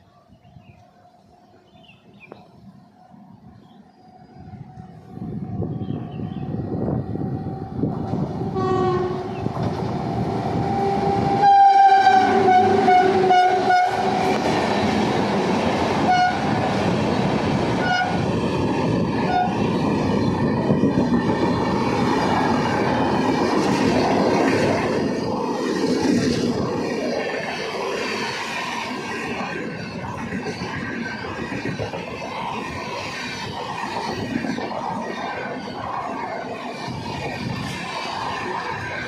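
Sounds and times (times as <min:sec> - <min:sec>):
train wheels rumbling on rails: 0:00.6 - 0:39.0
locomotive horn: 0:08.5 - 0:09.4, 0:10.7 - 0:14.4, 0:16.0 - 0:16.6, 0:17.8 - 0:18.2, 0:19.3 - 0:19.6.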